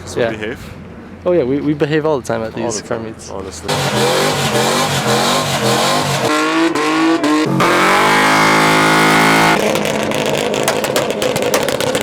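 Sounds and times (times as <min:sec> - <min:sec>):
car engine revving hard: 0:03.7 - 0:10.7.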